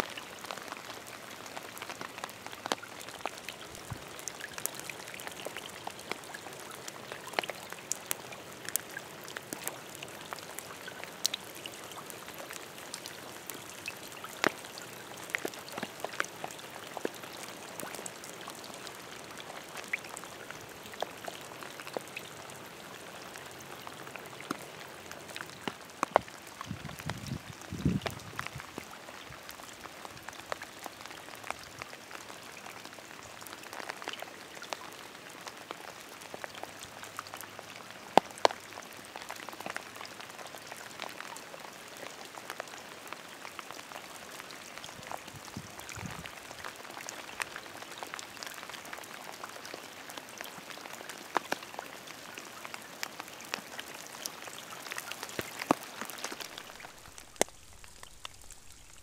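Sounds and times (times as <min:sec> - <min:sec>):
steady rain hiss: 0:00.0 - 0:59.0
raindrop ticks: 0:00.4 - 0:22.3, 0:23.8 - 0:32.4, 0:52.6 - 0:59.0.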